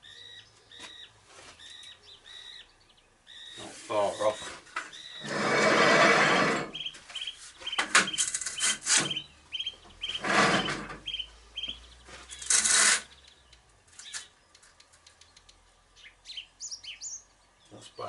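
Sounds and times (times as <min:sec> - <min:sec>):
bird chirping: 0:00.0 - 0:05.5, 0:06.7 - 0:18.0
scraping bursts: 0:03.8 - 0:09.3, 0:10.0 - 0:11.2, 0:12.0 - 0:13.2.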